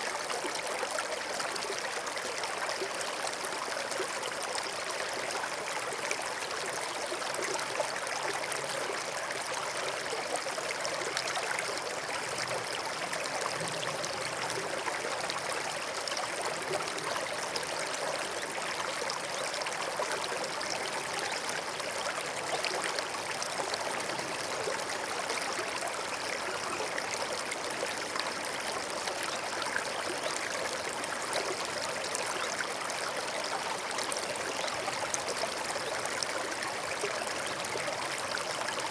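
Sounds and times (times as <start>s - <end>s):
stream trickling over stones: 0.0s - 38.9s.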